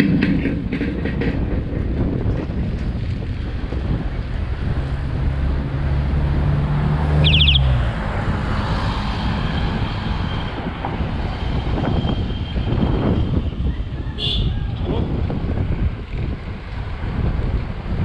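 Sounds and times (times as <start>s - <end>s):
vehicle engine humming: 0.0s - 18.0s
wind and road noise: 0.0s - 18.0s
high squeal: 7.2s - 7.8s.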